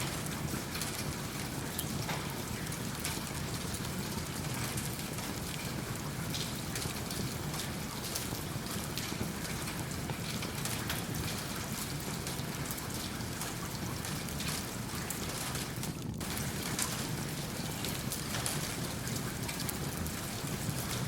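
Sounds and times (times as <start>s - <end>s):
log fire crackling: 0.0s - 21.0s
steady rain: 0.0s - 21.0s.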